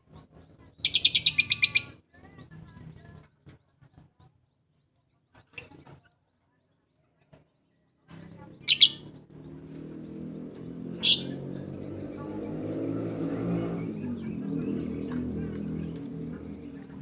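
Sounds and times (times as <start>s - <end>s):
lovebird chirping: 0.8s - 2.0s, 8.4s - 12.6s.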